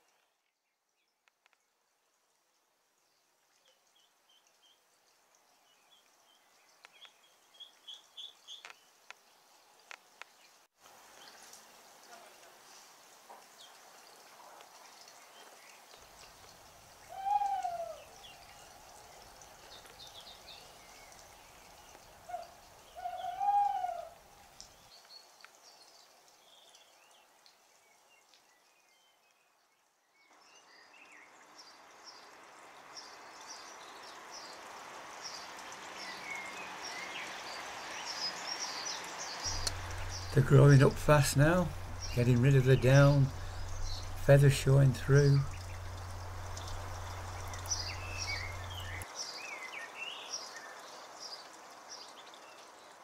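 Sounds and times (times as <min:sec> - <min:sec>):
owl hooting: 0:17.0 - 0:18.2, 0:22.3 - 0:24.2, 0:39.5 - 0:48.9
steady hiss: 0:33.2 - 0:49.4.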